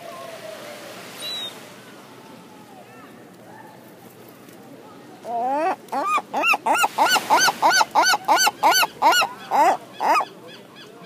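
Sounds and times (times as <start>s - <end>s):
seagull long call: 1.2s - 1.6s, 5.3s - 11.0s.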